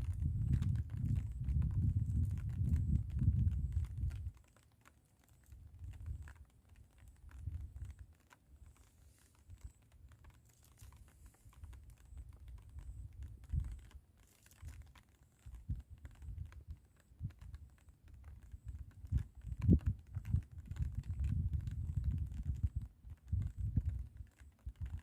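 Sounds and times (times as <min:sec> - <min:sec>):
wind buffeting microphone: 0:00.0 - 0:04.4, 0:11.8 - 0:13.9, 0:18.7 - 0:25.0
faint small clicks: 0:00.0 - 0:25.0.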